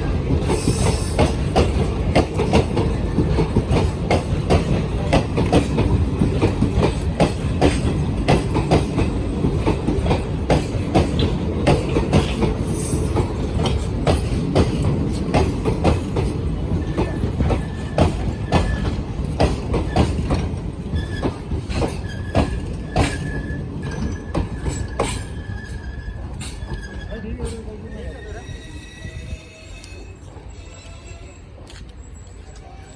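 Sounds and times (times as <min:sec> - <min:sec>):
wheels clacking over rail joints: 0:00.0 - 0:27.7
train rumbling past: 0:00.0 - 0:32.9
faint high wheel squeal: 0:22.0 - 0:32.9.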